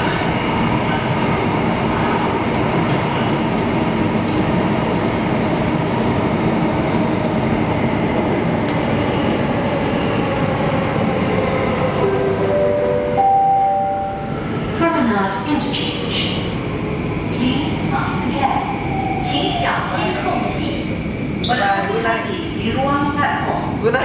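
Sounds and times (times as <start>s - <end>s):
train wheels rumbling on rail: 0.0s - 12.6s.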